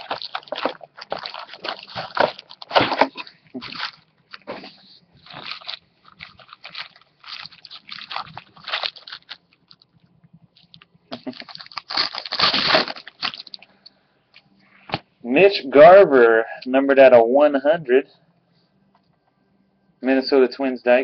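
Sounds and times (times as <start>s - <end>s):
card packaging crinkling: 0.0s - 13.6s.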